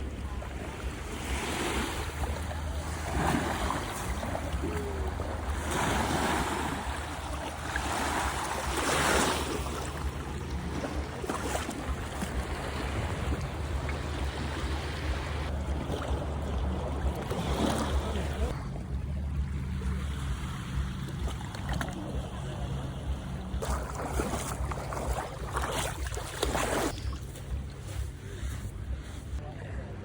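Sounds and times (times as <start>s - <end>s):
sea waves washing onto beach: 0.0s - 18.6s.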